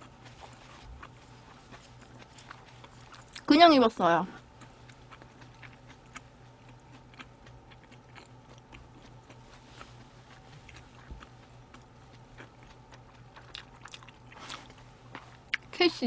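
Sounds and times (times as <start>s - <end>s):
low steady hum: 0.0s - 16.0s
person eating and drinking: 4.5s - 15.7s.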